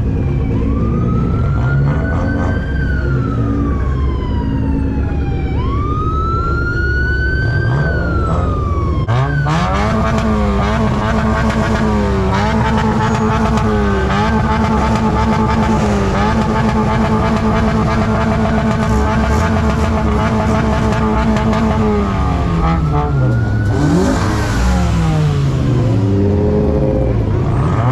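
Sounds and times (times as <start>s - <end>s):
car engine revving steadily: 7.4s - 27.9s.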